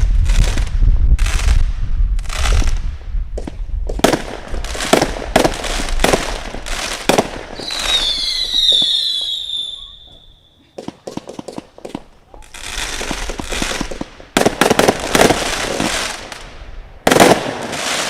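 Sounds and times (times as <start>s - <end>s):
fast firework crackling: 0.0s - 9.8s, 10.8s - 18.0s
firework shots: 0.0s - 10.1s, 10.7s - 18.0s
firework falling whistle: 7.6s - 10.6s.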